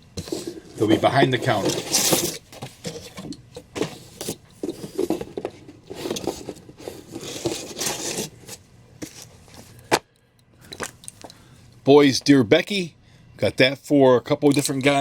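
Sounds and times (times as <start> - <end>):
paper and plastic rustling: 0.2 - 9.8.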